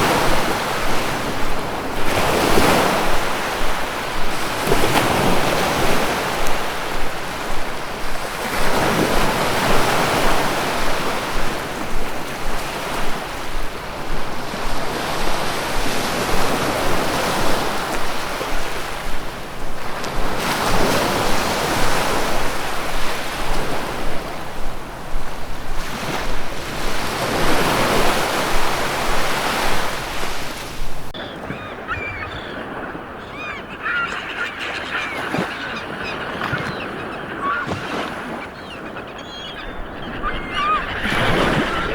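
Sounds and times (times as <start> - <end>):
birds calling: 0.0 - 41.9
waves breaking: 0.0 - 41.9.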